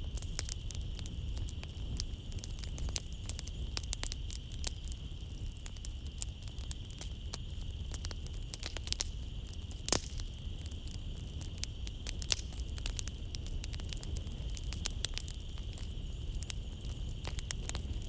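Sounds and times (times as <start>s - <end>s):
flames rumbling: 0.0s - 18.0s
night insects chirring: 0.0s - 18.0s
wood fire crackling and popping: 0.0s - 18.0s.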